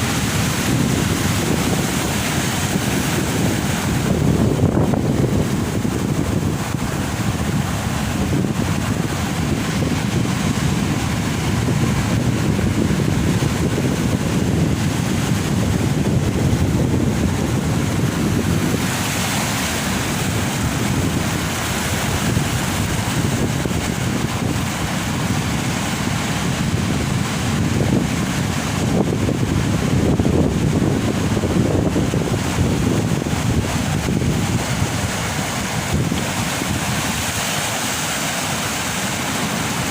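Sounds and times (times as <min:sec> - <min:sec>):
heavy surf breaking on beach: 0:00.0 - 0:39.9
wind buffeting microphone: 0:00.0 - 0:39.9.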